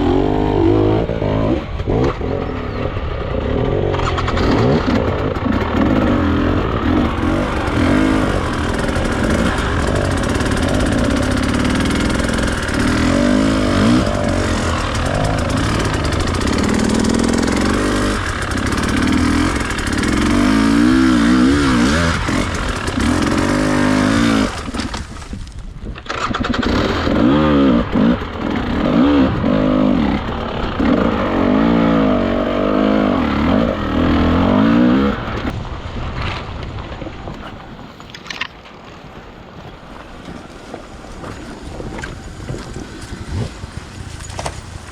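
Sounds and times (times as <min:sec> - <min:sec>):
dirt bike engine revving: 0:00.0 - 0:25.0, 0:26.1 - 0:35.5.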